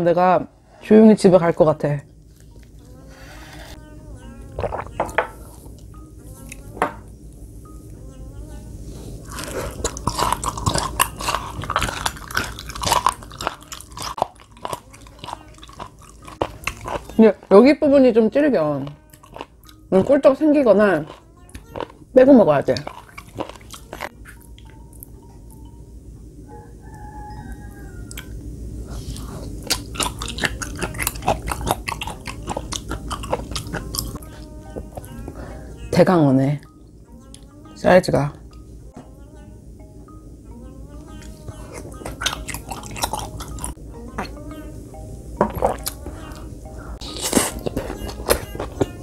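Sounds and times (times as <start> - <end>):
chewing with wet crunches: 9.3 - 17.6, 18.8 - 22.0, 22.7 - 24.7, 29.1 - 35.1, 41.2 - 44.4.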